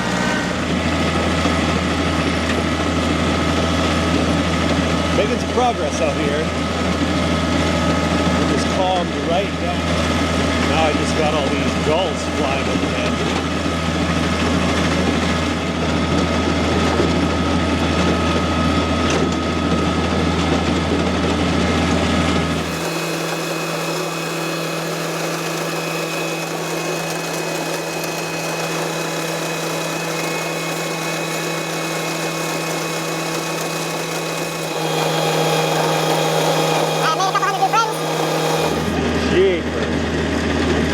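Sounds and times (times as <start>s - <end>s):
tractor engine droning: 0.0s - 40.9s.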